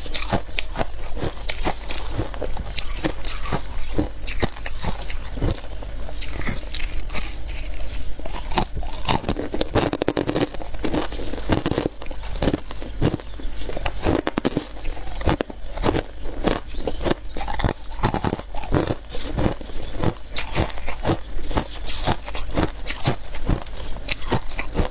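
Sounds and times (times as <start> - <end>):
ice being chewed: 0.0 - 24.9.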